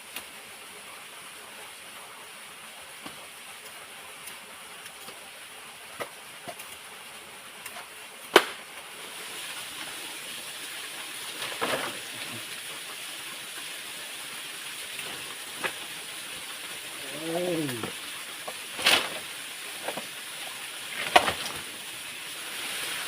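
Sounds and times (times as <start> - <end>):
waterfall rushing: 9.0 - 23.0.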